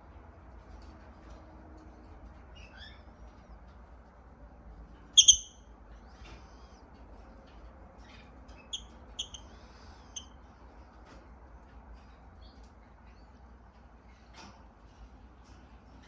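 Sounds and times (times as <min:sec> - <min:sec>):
lovebird squeaky chirps: 0:05.2 - 0:05.6, 0:08.8 - 0:09.4.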